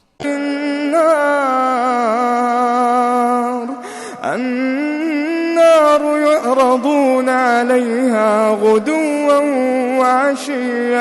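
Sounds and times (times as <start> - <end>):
man chanting recitation: 0.2 - 11.0
quick breath: 3.7 - 4.2.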